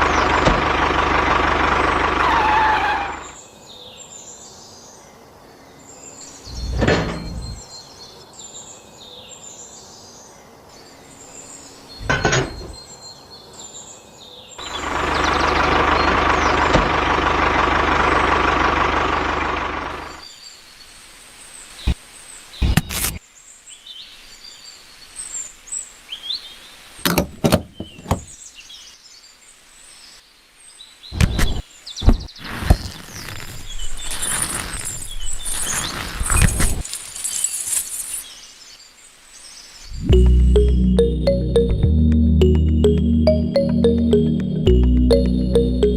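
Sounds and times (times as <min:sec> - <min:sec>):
birds chirping: 0:05.7 - 0:10.1, 0:10.8 - 0:17.2, 0:27.4 - 0:28.7.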